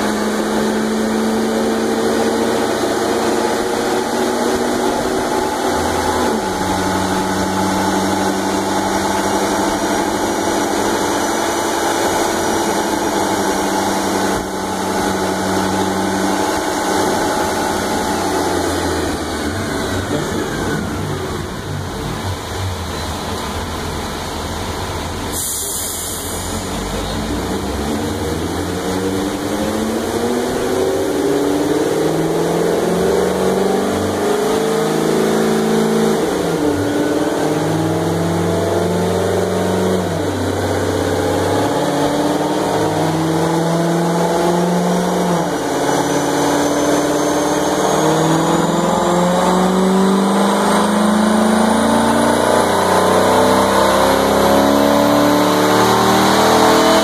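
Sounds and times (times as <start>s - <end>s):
car engine revving: 0.0s - 57.0s
thin rising whine: 0.0s - 57.0s
brief hiss: 25.3s - 26.8s.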